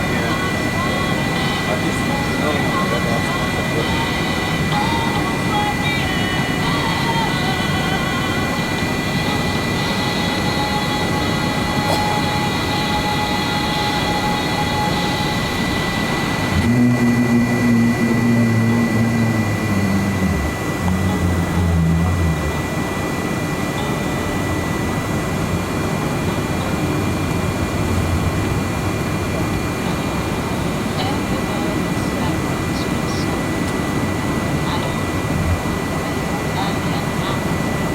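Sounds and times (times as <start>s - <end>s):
jet engine and airflow noise: 0.0s - 37.9s
low hum changing pitch: 13.1s - 25.6s, 27.0s - 36.0s.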